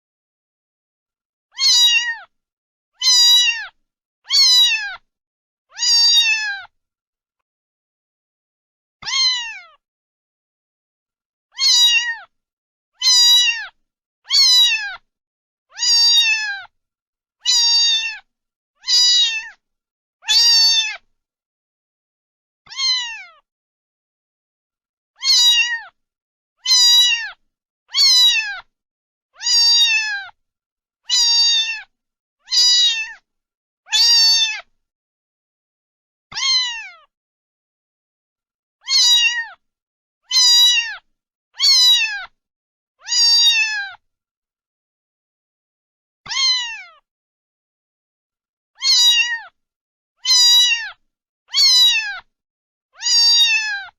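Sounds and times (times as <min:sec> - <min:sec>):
cat meowing: 0:01.5 - 0:02.3, 0:03.0 - 0:05.1, 0:05.7 - 0:06.7, 0:09.0 - 0:09.8, 0:11.5 - 0:12.3, 0:13.0 - 0:15.0, 0:15.7 - 0:16.7, 0:17.4 - 0:19.6, 0:20.2 - 0:21.1, 0:22.7 - 0:23.4, 0:25.2 - 0:26.0, 0:26.6 - 0:28.7, 0:29.4 - 0:30.4, 0:31.1 - 0:31.9, 0:32.5 - 0:33.2, 0:33.9 - 0:34.7, 0:36.3 - 0:37.1, 0:38.8 - 0:39.6, 0:40.2 - 0:42.4, 0:43.0 - 0:44.0, 0:46.3 - 0:47.0, 0:48.8 - 0:49.6, 0:50.2 - 0:52.3, 0:53.0 - 0:53.9.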